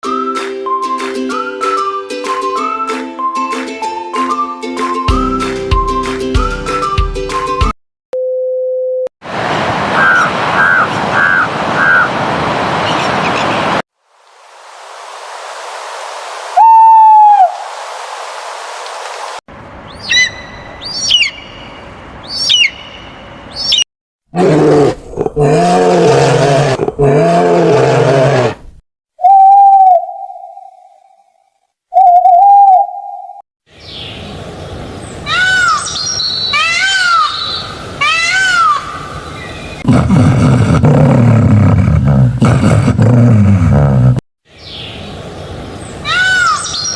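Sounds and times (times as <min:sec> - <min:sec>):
bird calling: 0:10.0 - 0:12.2, 0:19.8 - 0:23.8, 0:31.9 - 0:34.3, 0:35.0 - 0:39.8, 0:45.8 - 0:46.9.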